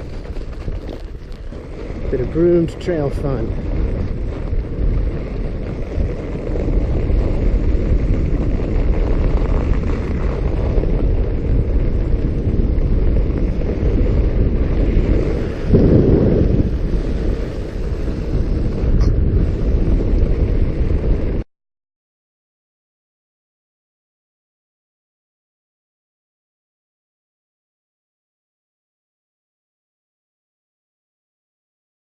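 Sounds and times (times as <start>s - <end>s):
bike riding on snow: 0.0s - 21.5s
wind rushing over microphone: 0.0s - 21.5s.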